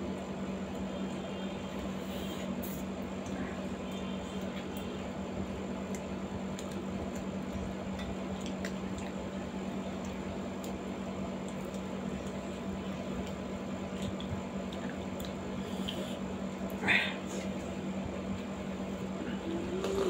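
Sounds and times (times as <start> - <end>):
steady low hum: 0.0 - 20.0
wet chewing: 5.8 - 16.8.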